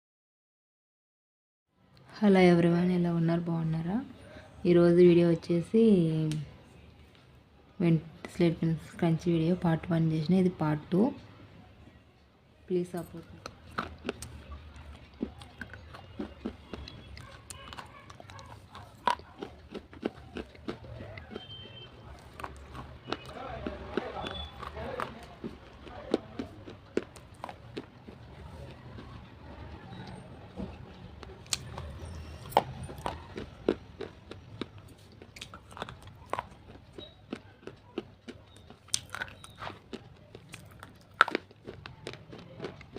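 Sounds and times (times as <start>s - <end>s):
chewing crunches and snaps: 13.0s - 42.9s.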